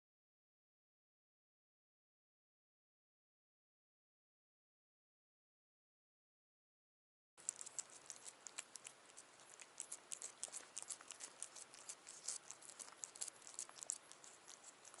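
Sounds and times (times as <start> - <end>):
quiet steady hiss: 7.4 - 15.0.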